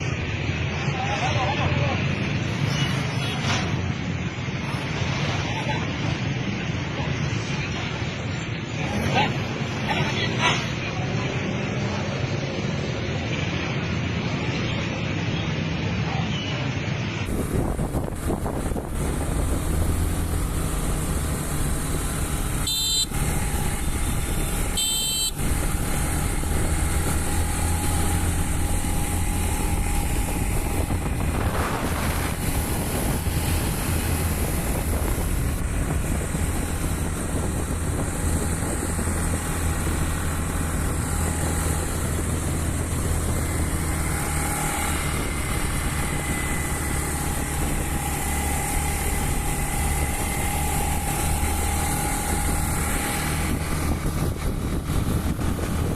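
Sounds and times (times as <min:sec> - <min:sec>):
road and wind noise: 0:00.0 - 0:55.9
motorbike engine running: 0:17.3 - 0:55.9.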